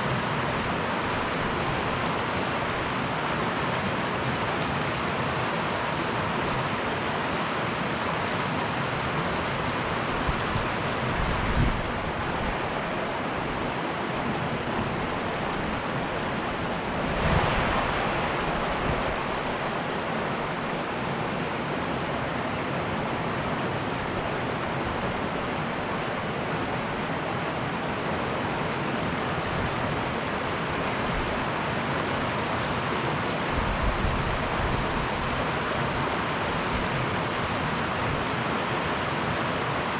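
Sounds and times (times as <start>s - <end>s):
river rushing: 0.0s - 39.9s
wind buffeting microphone: 9.5s - 20.6s.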